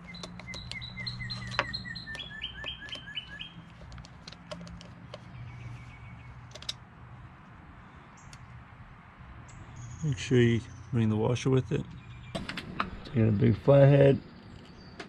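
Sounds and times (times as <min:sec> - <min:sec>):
sharp clicks and taps: 0:00.0 - 0:05.4, 0:06.5 - 0:06.8
songbird singing: 0:00.0 - 0:15.0.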